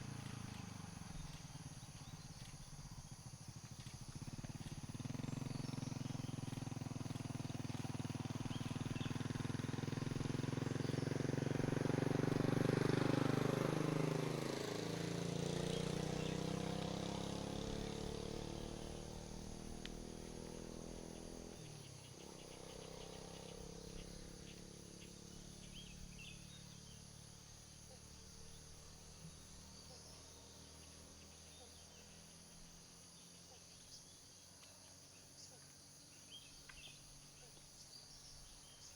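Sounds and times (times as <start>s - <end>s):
faint birds: 0.0s - 38.9s
insects: 0.0s - 38.9s
vehicle driving past: 4.2s - 33.2s.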